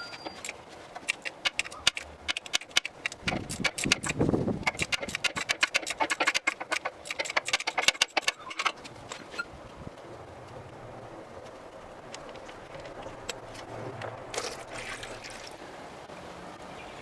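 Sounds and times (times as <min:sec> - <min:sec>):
ratchet wrench clicking: 0:00.4 - 0:08.7.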